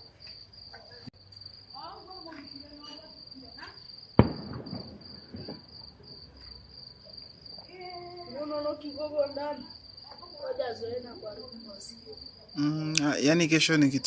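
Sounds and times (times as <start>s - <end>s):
crickets chirring: 0.0s - 14.0s
distant voices: 1.7s - 12.6s
firework bang with echo: 4.2s - 5.8s.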